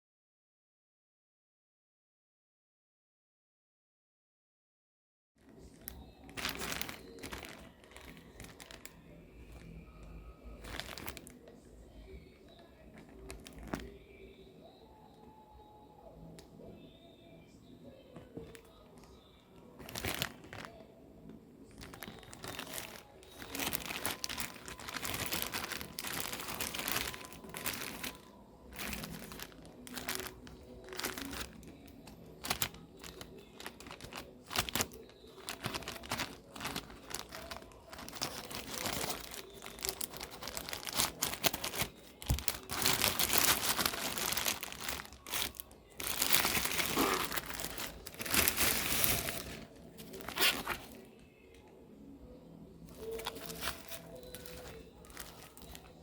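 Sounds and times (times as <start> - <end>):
plastic packaging crinkling: 5.5 - 11.5, 12.9 - 14.0, 18.3 - 20.8, 21.6 - 51.5, 52.8 - 56.0.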